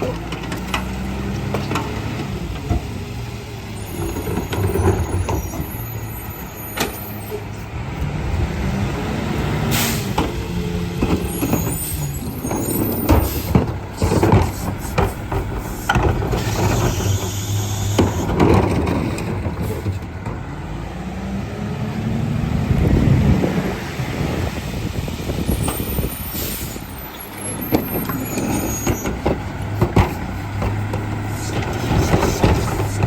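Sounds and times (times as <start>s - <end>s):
truck diesel engine revving: 7.7s - 33.0s.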